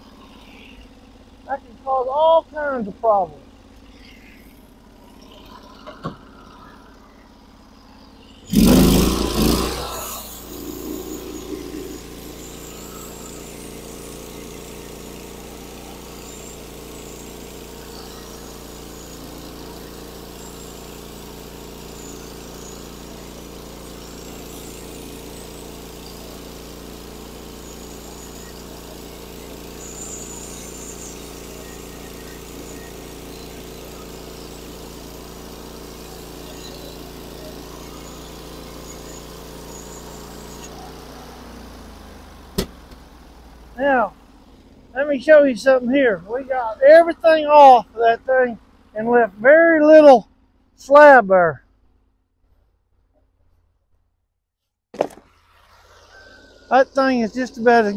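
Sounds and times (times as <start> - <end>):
gas engine starting and running: 0.0 - 53.6, 55.0 - 57.9.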